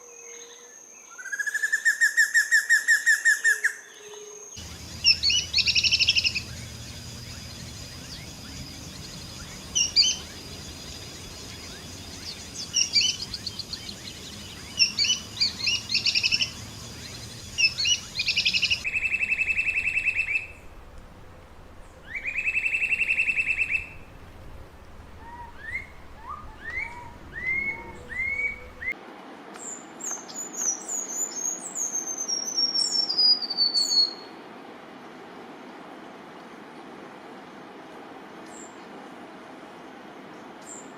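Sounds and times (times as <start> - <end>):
songbirds chirping: 4.0 - 29.0
rising bird whistles: 4.6 - 20.6, 22.0 - 24.0, 25.2 - 29.0
buzzing bird trills: 4.6 - 21.0
rapid high falling bird notes: 4.6 - 29.0.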